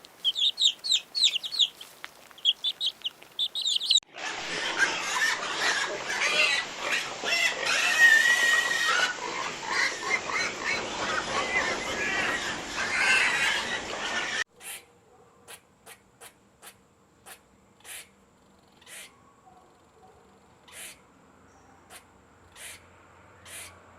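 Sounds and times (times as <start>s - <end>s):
dense animal noise: 0.0s - 14.4s.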